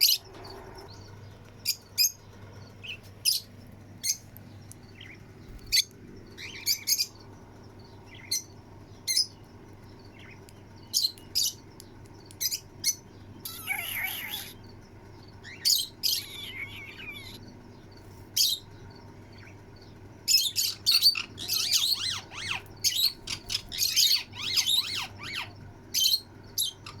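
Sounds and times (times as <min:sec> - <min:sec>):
parrots chirping and squawking: 0:00.0 - 0:02.2, 0:05.0 - 0:07.1, 0:12.4 - 0:14.6, 0:15.4 - 0:17.4, 0:20.3 - 0:27.0.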